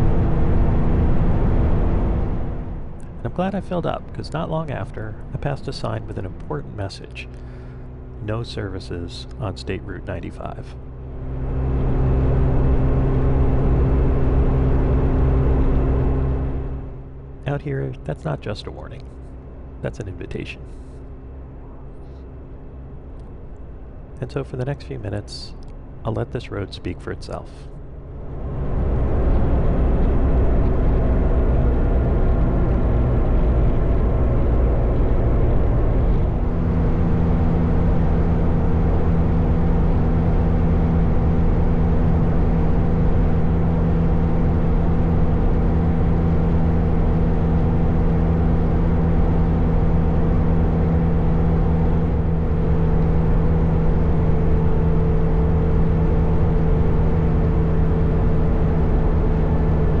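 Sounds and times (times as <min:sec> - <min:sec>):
motorcycle engine cruising: 0:00.0 - 0:24.1, 0:27.7 - 1:00.0
wind and road noise: 0:00.0 - 1:00.0.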